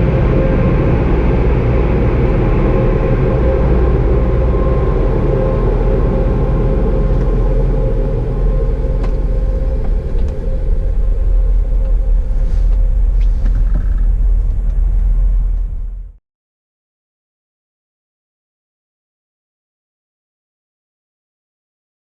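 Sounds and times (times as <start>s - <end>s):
car wash dryer blowers rumbling: 0.0s - 16.2s
steady whine: 0.0s - 16.2s.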